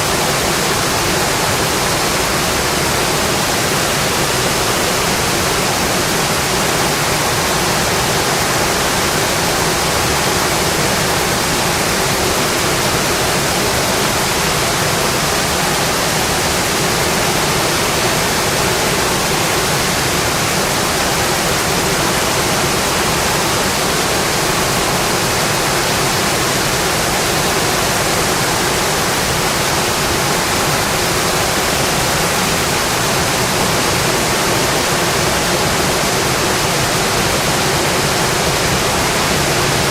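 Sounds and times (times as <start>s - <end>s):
heavy rain on a metal roof: 0.0s - 39.9s.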